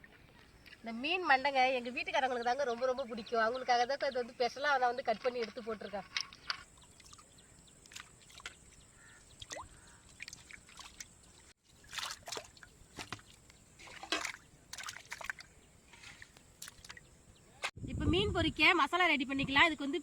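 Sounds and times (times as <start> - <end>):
water splashing and dripping: 6.3 - 17.7.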